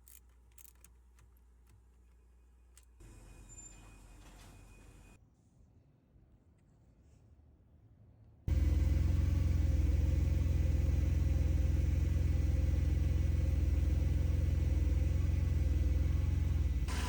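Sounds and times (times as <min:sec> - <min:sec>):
car engine running: 0:08.5 - 0:17.0.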